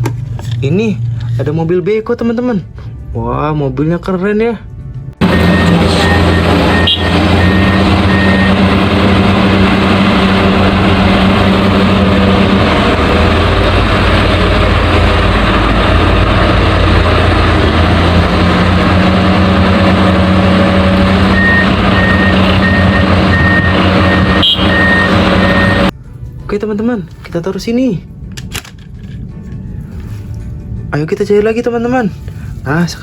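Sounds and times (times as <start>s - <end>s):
diesel engine running: 4.9s - 26.4s
reversing alarm beeping: 5.2s - 11.4s, 20.8s - 25.9s.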